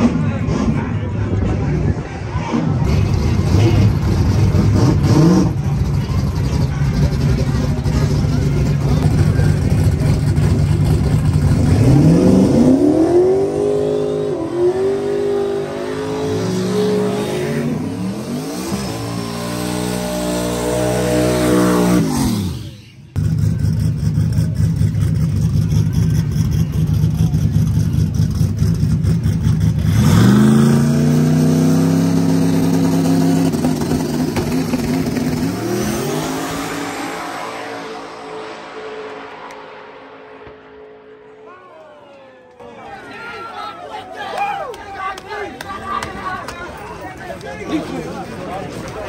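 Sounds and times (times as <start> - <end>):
racing engine at full throttle: 0.0 - 41.5.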